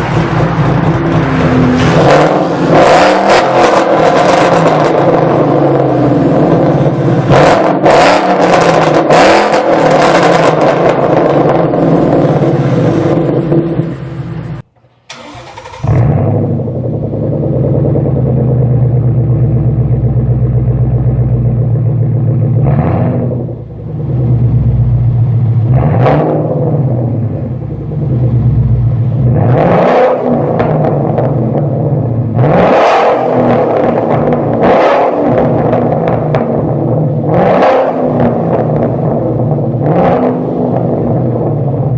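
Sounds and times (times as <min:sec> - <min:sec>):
car engine revving: 0:00.0 - 0:41.9
car idling with deep rumble: 0:04.8 - 0:07.4, 0:10.8 - 0:29.7.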